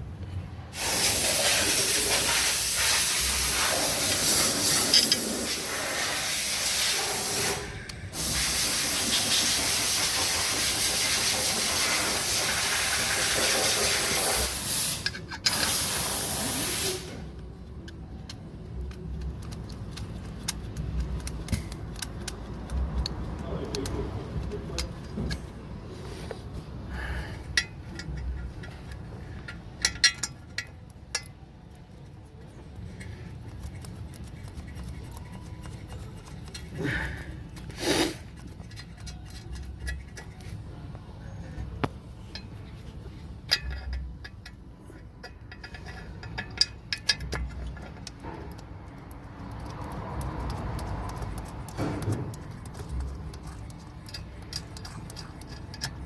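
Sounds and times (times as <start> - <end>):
metallic clinks of tools: 17.3 - 25.5, 27.5 - 40.4, 43.4 - 56.0.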